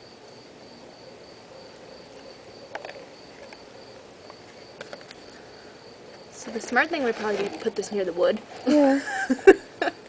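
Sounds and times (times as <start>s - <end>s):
cricket chirping: 0.0s - 7.8s.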